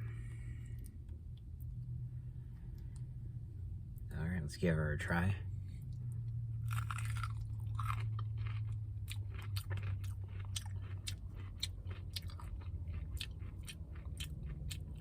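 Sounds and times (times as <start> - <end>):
steady low hum: 0.0 - 15.0
crunchy chewing of fried chicken: 5.8 - 15.0.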